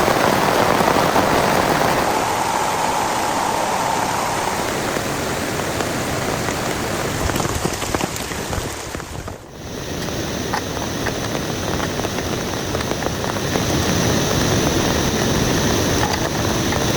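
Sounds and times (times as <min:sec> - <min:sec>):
heavy rain falling: 0:00.0 - 0:16.9.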